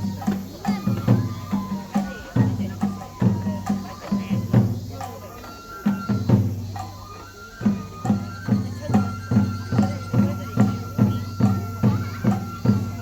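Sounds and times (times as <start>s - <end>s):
drum struck steadily: 0.0s - 13.0s.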